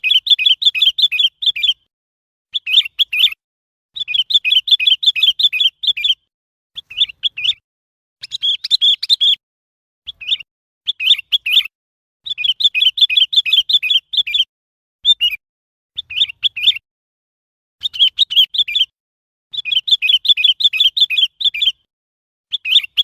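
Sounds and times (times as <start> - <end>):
bird chirping in bursts: 0.0 - 1.9, 2.5 - 3.4, 4.0 - 7.6, 8.2 - 9.4, 10.1 - 15.4, 16.0 - 16.9, 17.8 - 21.9, 22.5 - 23.0.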